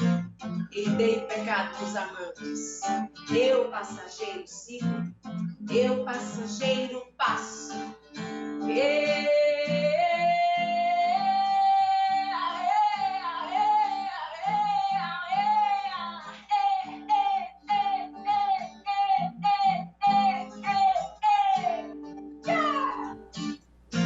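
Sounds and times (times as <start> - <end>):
acoustic guitar: 0.0 - 24.0
woman singing: 0.7 - 5.0, 5.7 - 23.2.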